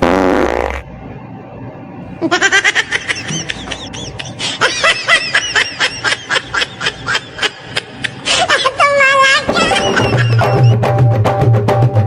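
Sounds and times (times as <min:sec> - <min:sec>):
low background noise: 0:00.0 - 0:10.9
laughter in quick bursts: 0:02.2 - 0:08.8, 0:09.5 - 0:10.8.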